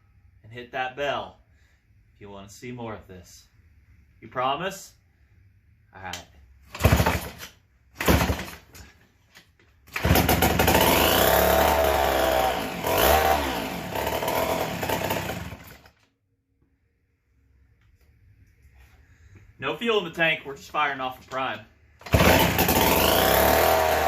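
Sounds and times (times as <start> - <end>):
chainsaw engine revving: 6.8 - 7.4, 8.0 - 8.6, 9.9 - 15.9, 22.0 - 24.0.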